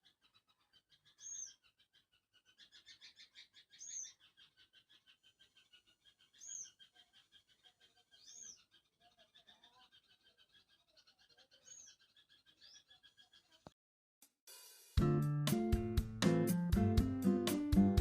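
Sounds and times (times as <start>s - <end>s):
chirping animal calls: 0.0s - 13.7s.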